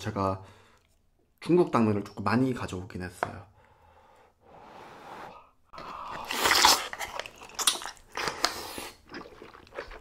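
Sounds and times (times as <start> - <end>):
person chewing noodles: 5.7 - 10.0
wet mouth noises: 5.7 - 10.0.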